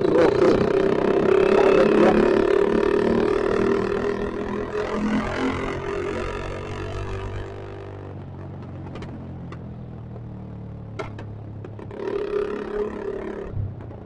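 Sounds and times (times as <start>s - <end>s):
motorcycle engine slowing to idle: 5.7s - 14.0s.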